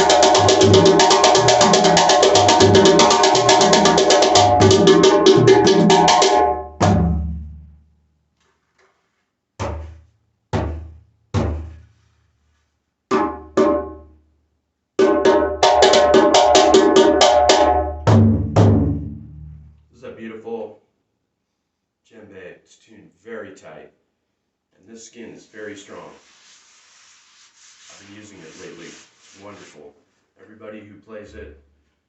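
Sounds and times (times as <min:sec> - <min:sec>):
hand drum strokes: 0:00.0 - 0:06.5.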